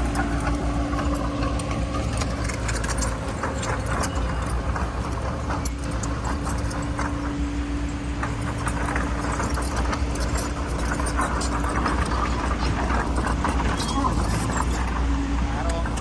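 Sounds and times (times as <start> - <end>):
bulldozer diesel engine rumbling: 0.0 - 16.0
metallic clanks and knocks: 0.0 - 16.0.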